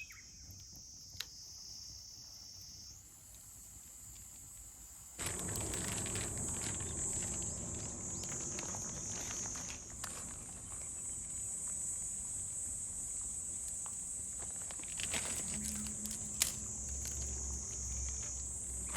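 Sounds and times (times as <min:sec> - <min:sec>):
insects trilling: 0:00.0 - 0:18.9
small crackles and clicks: 0:03.3 - 0:11.8, 0:13.6 - 0:18.9.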